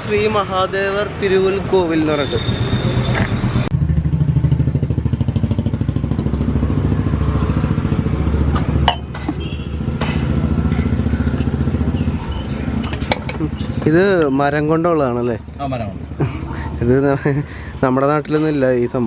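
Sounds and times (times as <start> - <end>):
motorcycle engine running: 3.7 - 13.9.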